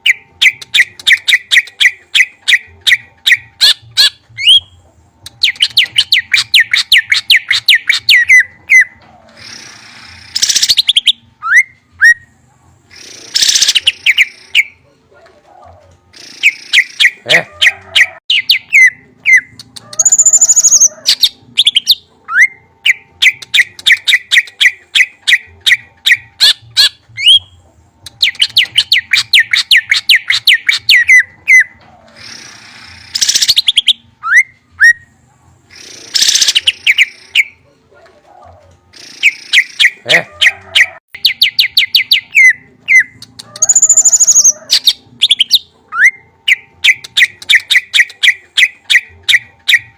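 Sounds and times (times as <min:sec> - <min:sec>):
songbird chirps and trills: 0:00.0 - 0:49.9.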